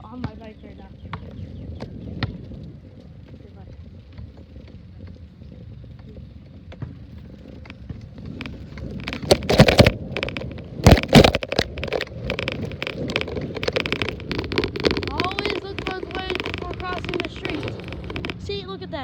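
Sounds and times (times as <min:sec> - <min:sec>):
low rumble of bicycle ride: 0:00.0 - 0:19.0
rattling ticks: 0:07.1 - 0:18.6.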